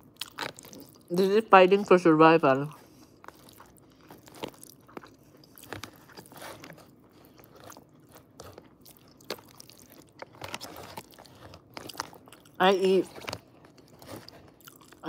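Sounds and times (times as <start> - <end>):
chewing with wet mouth sounds: 0.0 - 2.0, 2.6 - 15.0.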